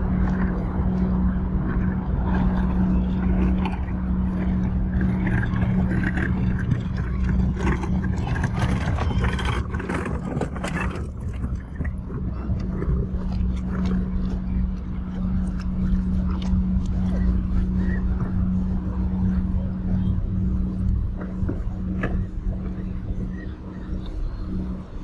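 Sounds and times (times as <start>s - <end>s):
motor humming: 0.0s - 25.0s
clicking and clatter: 4.5s - 17.8s.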